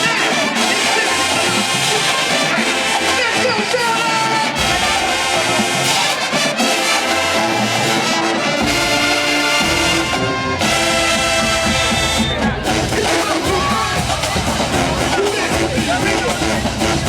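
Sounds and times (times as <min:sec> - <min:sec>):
marching band brass playing chords: 0:00.0 - 0:17.0
deep low brass: 0:04.5 - 0:17.0.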